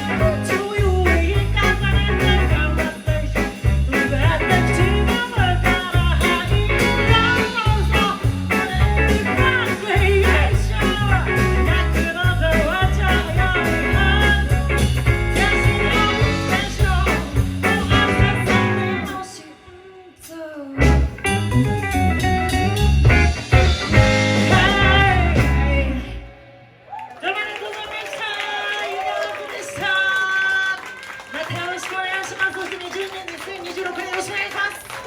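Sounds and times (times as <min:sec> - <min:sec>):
live band playing a song: 0:00.0 - 0:19.4, 0:20.2 - 0:26.4
person singing: 0:00.0 - 0:21.1, 0:23.9 - 0:26.5.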